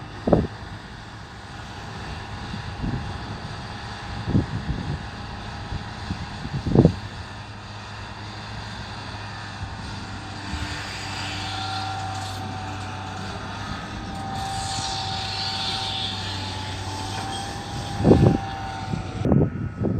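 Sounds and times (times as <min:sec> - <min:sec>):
excavator diesel engine running: 0:00.0 - 0:19.9
high whine: 0:09.0 - 0:19.9.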